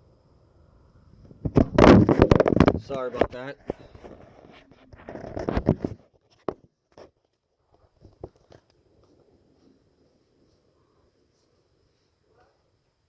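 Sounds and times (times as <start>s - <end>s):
handling rustling scrape: 1.5s - 7.2s.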